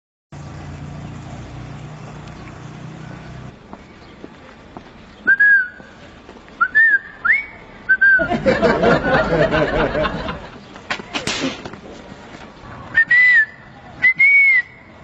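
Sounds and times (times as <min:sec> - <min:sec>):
short rising whistles: 0:12.9 - 0:14.9.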